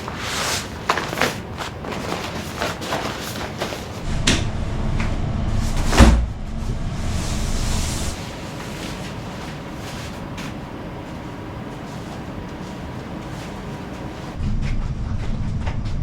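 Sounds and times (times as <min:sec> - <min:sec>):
low rumble: 0:04.0 - 0:08.2, 0:14.4 - 0:16.0
heavy thump: 0:04.1 - 0:07.1.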